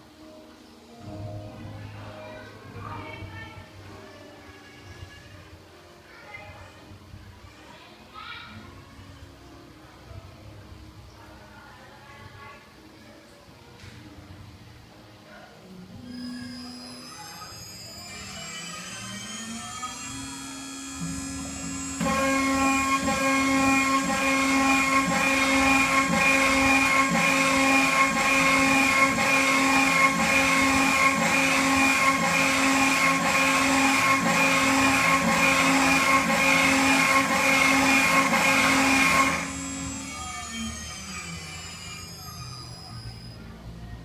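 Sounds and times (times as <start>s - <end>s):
spindle high-pitched whine: 15.9s - 44.0s
gritty metal cutting noise: 16.1s - 43.4s.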